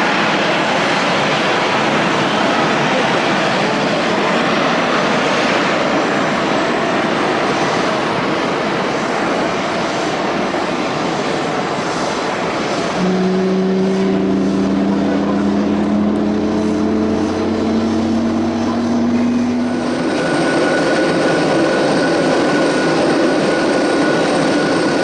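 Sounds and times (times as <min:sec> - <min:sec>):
jet engines roaring: 0:00.0 - 0:25.0
low steady hum: 0:13.0 - 0:21.1.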